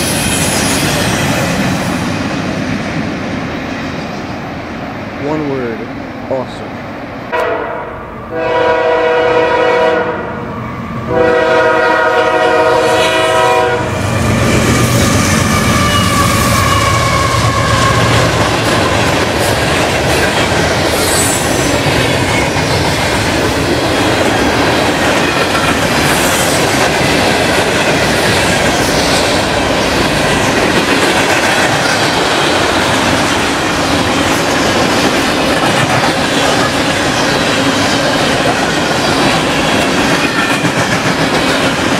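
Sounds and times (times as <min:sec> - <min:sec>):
train wheels rumbling and clacking: 0:00.0 - 0:06.6, 0:10.4 - 0:41.9
locomotive air horn blasts: 0:07.3 - 0:10.4, 0:11.1 - 0:14.0.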